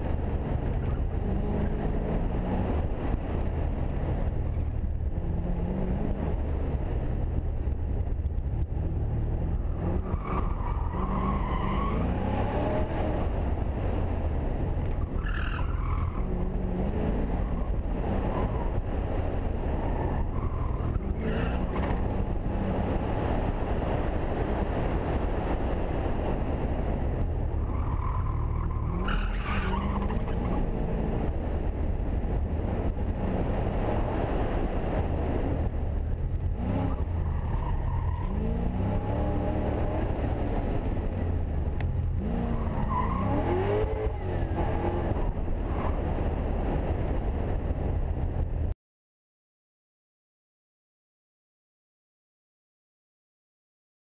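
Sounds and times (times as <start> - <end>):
car engine accelerating: 0.0 - 47.4
road and wind noise: 0.0 - 48.8
tyre squeal: 27.7 - 30.6.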